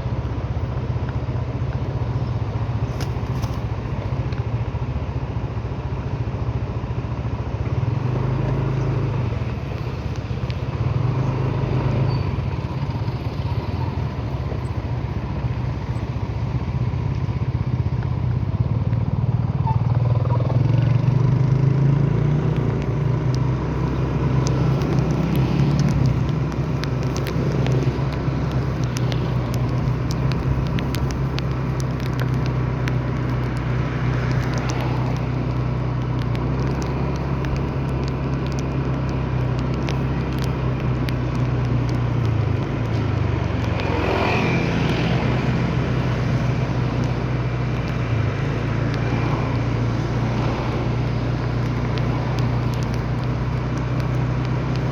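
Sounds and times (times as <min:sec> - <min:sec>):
road vehicle engine and road noise: 0:00.0 - 0:54.9
small scattered ticks: 0:22.5 - 0:54.9.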